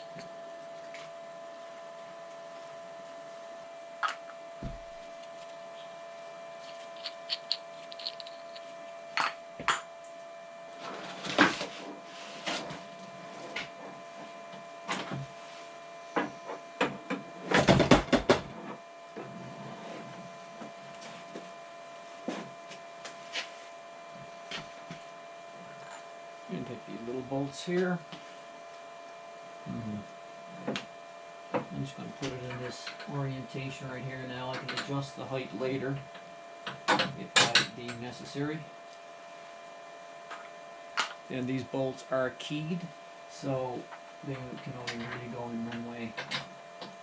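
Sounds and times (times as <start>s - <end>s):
charger cooling fan whirring: 0.0s - 47.0s
parts knocking and rattling: 6.6s - 9.4s.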